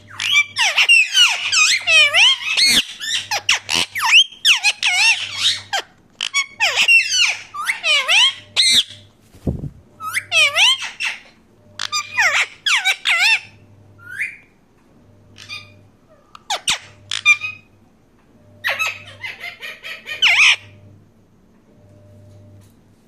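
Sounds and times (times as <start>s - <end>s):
parakeet squawking: 0.0s - 9.0s, 10.0s - 14.4s, 15.4s - 15.8s, 16.4s - 17.7s, 18.6s - 20.8s.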